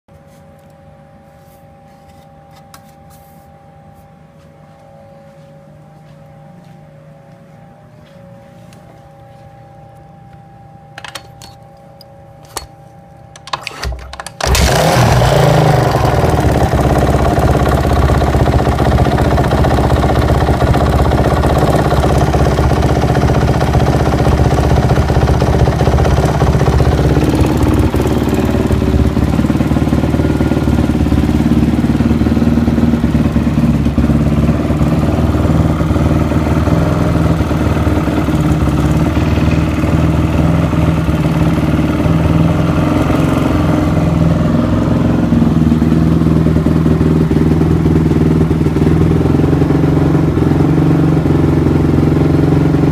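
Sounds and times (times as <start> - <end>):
motorcycle engine running: 14.2 - 52.9
engine knocking: 14.4 - 42.2.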